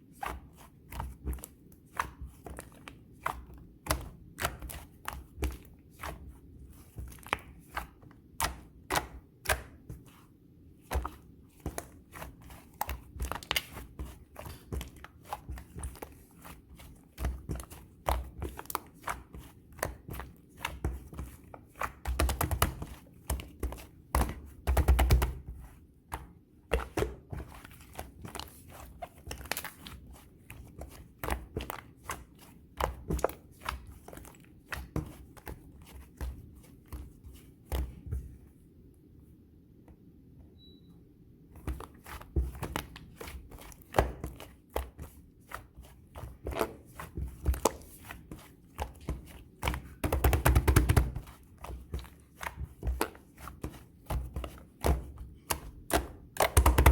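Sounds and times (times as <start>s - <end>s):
slime squelching and popping: 41.6s - 56.9s.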